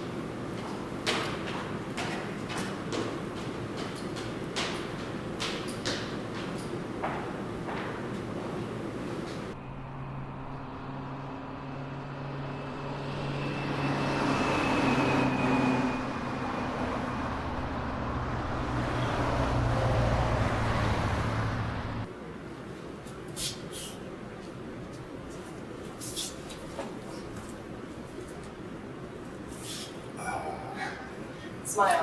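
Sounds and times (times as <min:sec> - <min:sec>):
road vehicle hum: 0:00.0 - 0:22.4.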